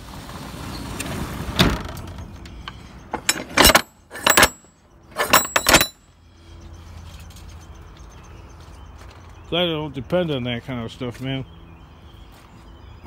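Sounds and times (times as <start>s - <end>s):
steady noisy rumble: 0.0s - 8.8s
loose metal clanking and rattling: 1.5s - 6.1s.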